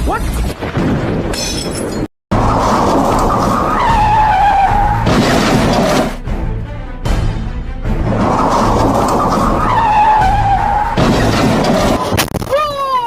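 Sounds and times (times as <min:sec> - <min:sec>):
tyre and road noise: 0:00.0 - 0:06.3, 0:07.9 - 0:13.0
crash: 0:00.7 - 0:06.2, 0:08.0 - 0:12.5
breaking glass: 0:05.0 - 0:06.1, 0:11.0 - 0:12.4.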